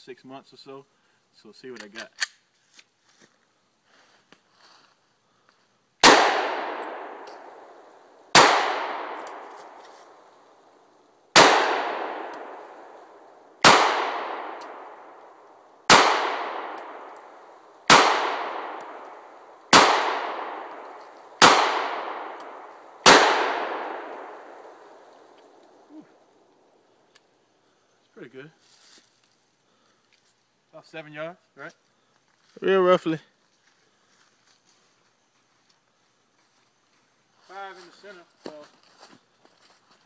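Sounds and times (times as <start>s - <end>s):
pistol shots with echo: 6.0s - 9.5s, 11.3s - 15.2s, 15.8s - 17.2s, 17.8s - 25.0s.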